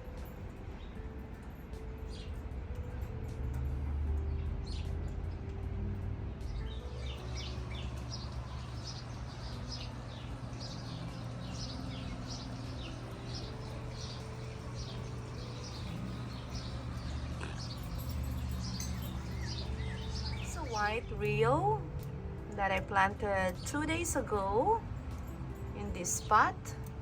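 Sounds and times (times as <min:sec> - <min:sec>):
low background hum: 0:00.0 - 0:27.0
small birds chirping: 0:06.4 - 0:21.9.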